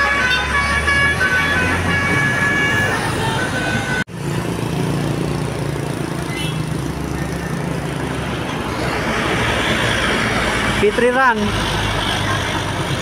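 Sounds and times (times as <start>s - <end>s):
multi-tone bus horn: 0.0s - 4.1s
bus engine running: 0.0s - 13.0s
traffic noise: 0.0s - 13.0s.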